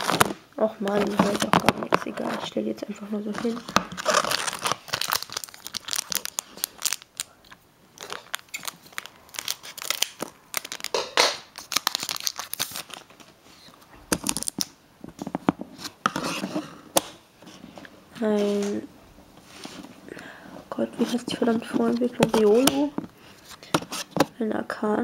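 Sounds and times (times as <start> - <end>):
foil wrapper crinkling and tearing: 0.0 - 2.5, 3.3 - 7.4, 8.0 - 14.8.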